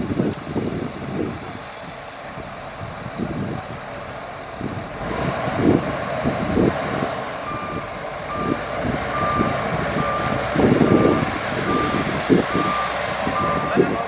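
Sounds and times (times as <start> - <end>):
heavy engine surging and knocking: 0.0 - 14.0
reversing alarm beeping: 7.4 - 14.0.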